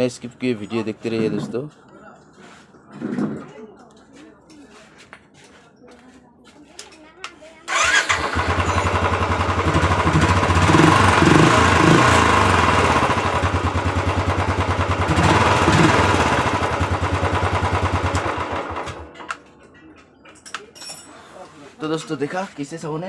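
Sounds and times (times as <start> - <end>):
motorcycle engine idling and revving: 7.7 - 19.2.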